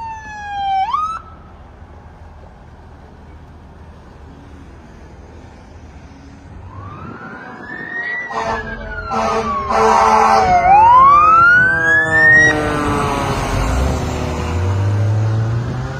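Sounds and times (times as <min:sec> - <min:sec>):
emergency siren wailing: 0:00.0 - 0:01.5, 0:06.5 - 0:15.8
short horn blasts: 0:08.3 - 0:10.6.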